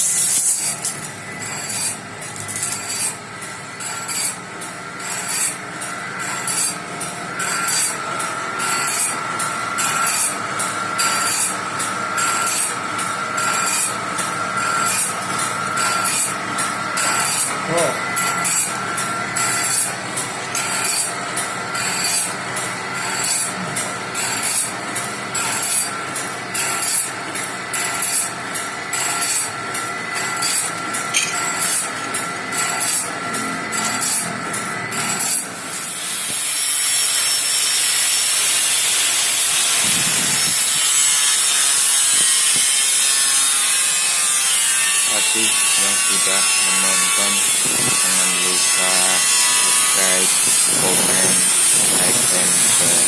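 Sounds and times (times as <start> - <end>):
band saw scraping strokes: 0.0 - 3.2, 3.8 - 4.4, 6.2 - 6.8, 14.6 - 20.0, 34.9 - 53.0
machine whine: 0.0 - 53.0.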